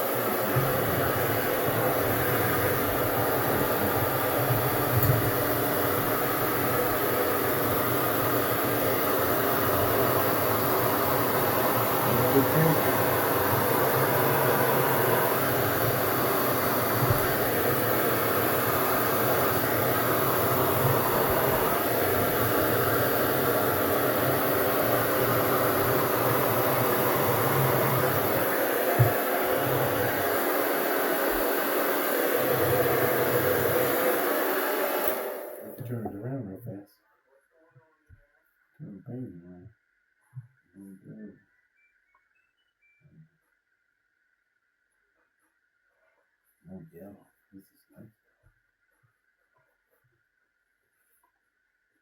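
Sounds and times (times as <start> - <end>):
hair dryer running: 0.0 - 35.8.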